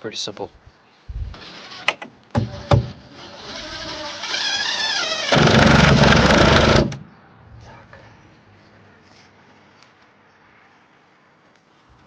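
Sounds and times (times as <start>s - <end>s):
loud rattling hammering: 5.3s - 7.0s.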